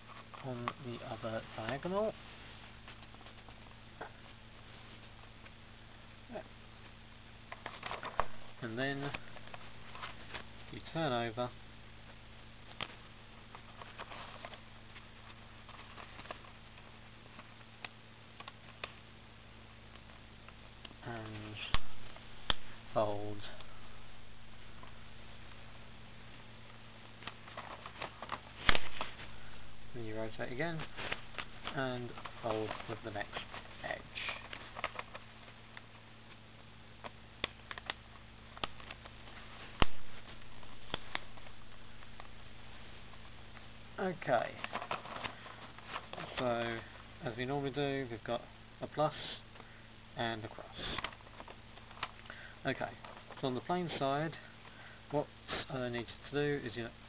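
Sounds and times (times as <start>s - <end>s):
faint steady hum: 0.0s - 57.0s
paper rustling and crinkling: 7.5s - 11.0s, 12.6s - 17.8s, 27.1s - 36.4s, 37.0s - 47.1s.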